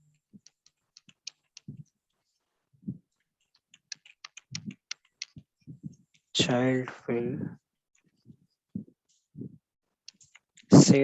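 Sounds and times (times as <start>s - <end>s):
keyboard key clicks: 3.5s - 5.5s.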